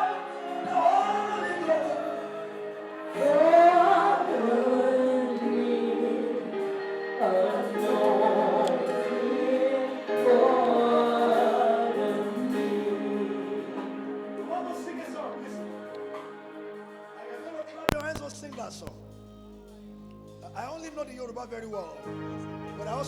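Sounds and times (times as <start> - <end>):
group singing worship song: 0.0 - 17.7.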